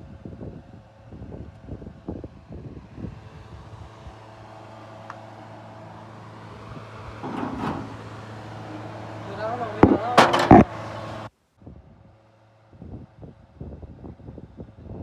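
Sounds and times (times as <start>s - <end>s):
low mechanical hum: 0.0s - 15.0s
knocks: 10.2s - 10.7s.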